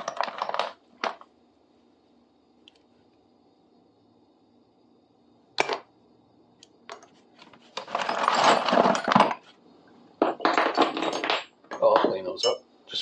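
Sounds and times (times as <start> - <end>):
metal tools clinking: 7.8 - 9.4, 10.2 - 12.6.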